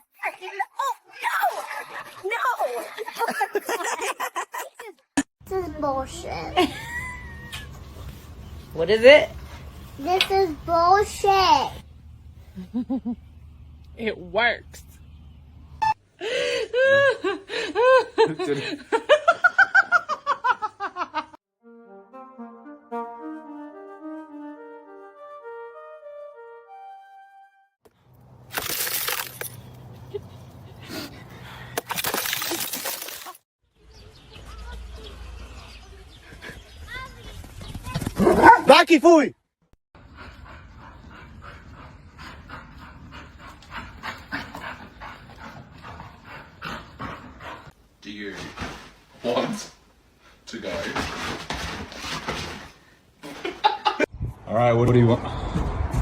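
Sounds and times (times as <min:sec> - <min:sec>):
background music with held notes: 0:21.6 - 0:27.7
dog panting: 0:40.0 - 0:47.8.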